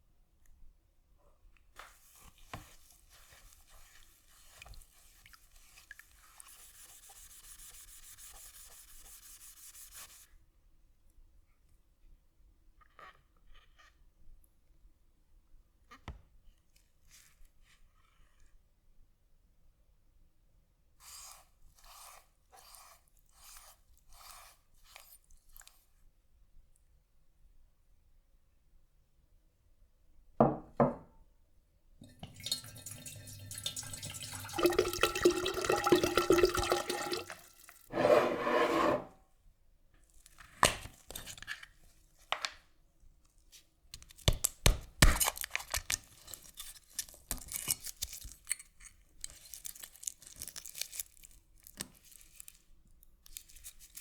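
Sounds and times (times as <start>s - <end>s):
faint hand tool scraping: 21.0s - 25.9s, 36.9s - 39.2s.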